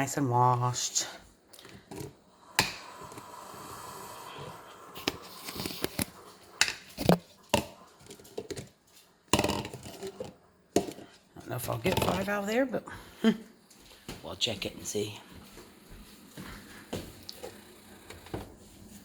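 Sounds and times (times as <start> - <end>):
rustling and scraping: 5.0 - 11.2
clicks and knocks of containers: 5.4 - 12.3
food containers knocking: 9.3 - 11.1, 11.8 - 12.3.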